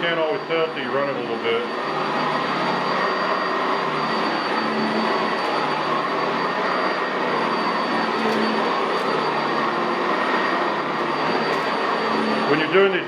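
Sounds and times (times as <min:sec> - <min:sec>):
upright vacuum running on carpet: 0:00.0 - 0:13.0.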